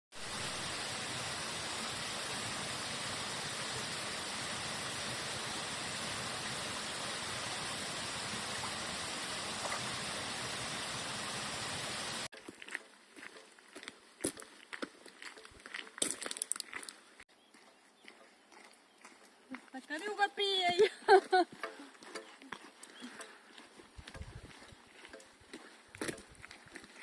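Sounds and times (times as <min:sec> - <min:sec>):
running water rushing: 0:00.1 - 0:12.3.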